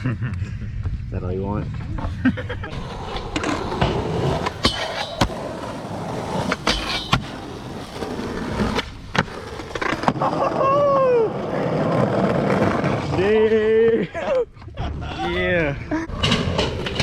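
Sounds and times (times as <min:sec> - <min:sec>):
skateboard wheels rolling on concrete: 0:00.6 - 0:17.0
skateboard deck clacking on ground: 0:02.7 - 0:10.2.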